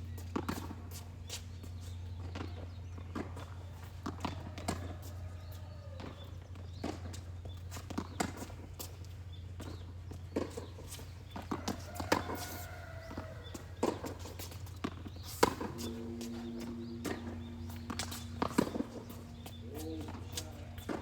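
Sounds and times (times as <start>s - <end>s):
racquets striking tennis ball: 9.6s - 21.0s
steady low hum: 12.4s - 21.0s.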